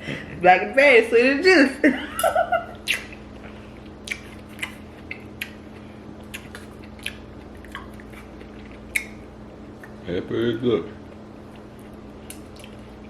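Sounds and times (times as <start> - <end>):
hum-like murmur: 0.0 - 13.0
wet mouth clicks and smacks: 2.8 - 3.2, 4.0 - 9.2, 9.8 - 10.0.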